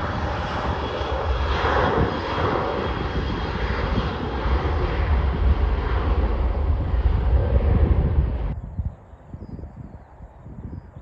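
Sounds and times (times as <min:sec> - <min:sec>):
jet engines roaring: 0:00.0 - 0:08.6.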